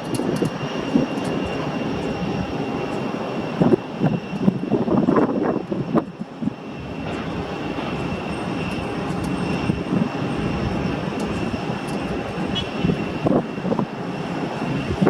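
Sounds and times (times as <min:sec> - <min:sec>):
jet engines rushing and whining: 0:00.0 - 0:15.0
irregular buffeting: 0:00.1 - 0:15.0.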